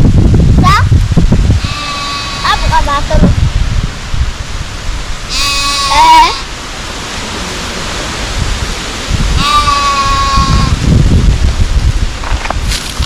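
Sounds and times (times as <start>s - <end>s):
goat bleating: 1.6s - 2.9s, 5.3s - 6.5s, 9.4s - 10.8s.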